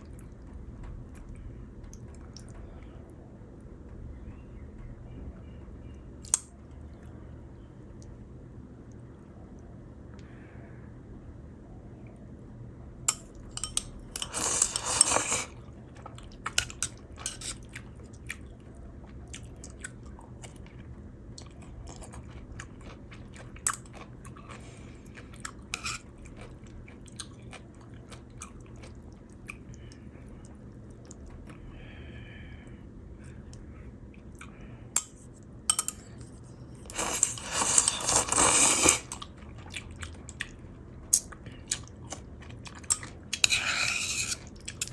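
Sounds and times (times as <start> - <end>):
steady low hum: 0.0 - 44.9
person chewing crunchy food: 13.6 - 31.7, 34.2 - 44.9.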